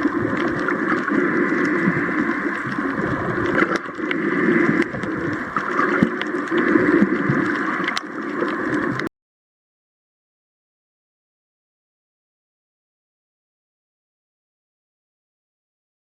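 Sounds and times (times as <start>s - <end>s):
faint clicks: 0.0s - 9.1s.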